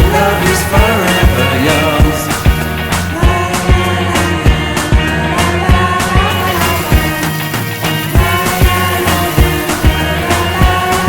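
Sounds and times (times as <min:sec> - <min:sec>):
kick-drum beat: 0:00.0 - 0:07.2
pop song: 0:00.0 - 0:11.0.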